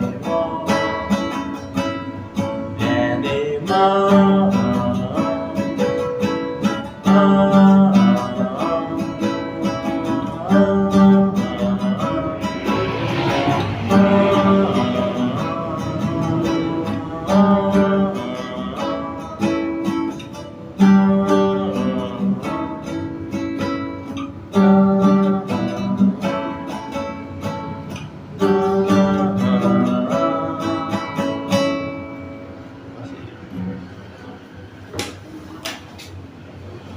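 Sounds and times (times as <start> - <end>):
guitar strumming chords: 0.0 - 34.8.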